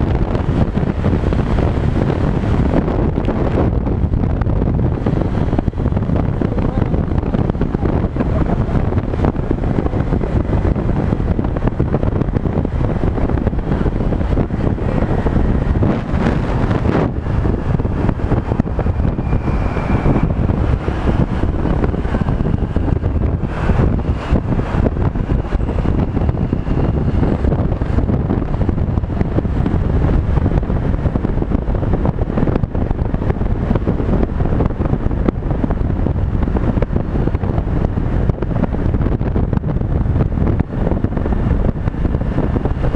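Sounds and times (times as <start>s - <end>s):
road noise: 0.0s - 42.9s
wind buffeting microphone: 0.0s - 42.9s
faint whining tones: 13.3s - 28.7s.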